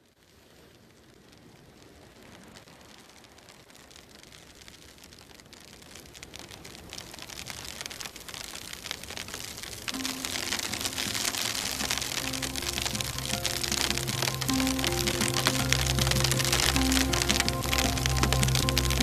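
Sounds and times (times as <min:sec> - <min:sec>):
rain falling on a surface: 0:00.0 - 0:19.0
held music tones: 0:09.9 - 0:19.0.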